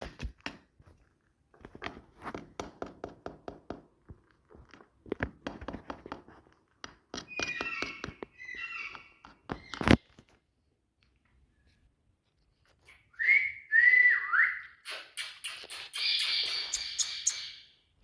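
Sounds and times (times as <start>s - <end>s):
parrot call: 7.3s - 9.2s, 13.1s - 17.7s.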